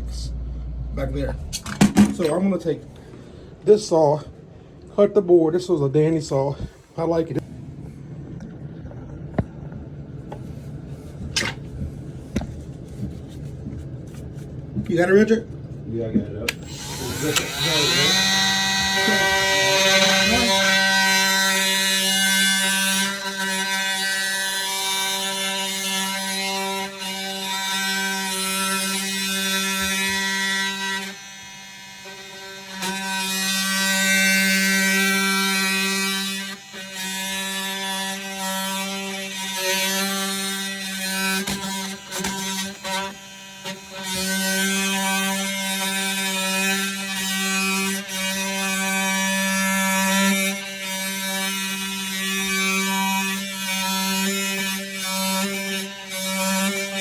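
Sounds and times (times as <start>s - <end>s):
multi-tool cutting board: 9.2s - 14.5s, 16.5s - 57.0s.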